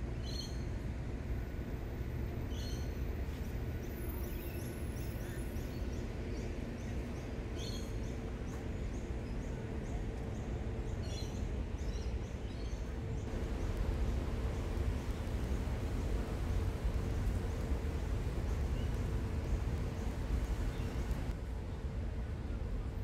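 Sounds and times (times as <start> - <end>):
distant city traffic rumble: 0.0 - 23.0.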